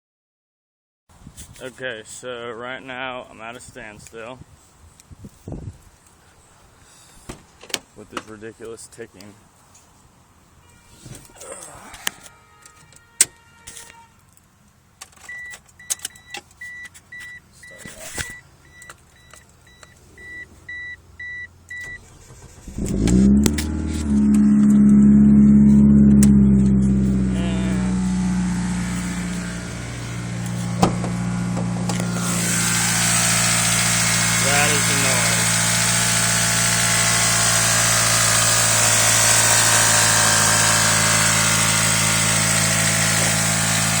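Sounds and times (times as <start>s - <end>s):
dashboard warning chime beeping: 15.3s - 22.6s
car engine starting and idling: 18.0s - 44.0s.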